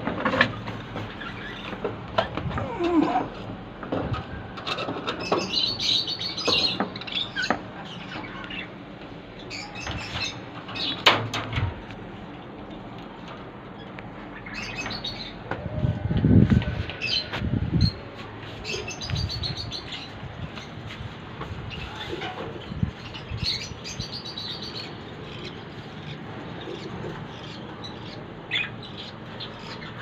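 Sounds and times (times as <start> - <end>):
budgerigars chirping: 23.0 - 30.0.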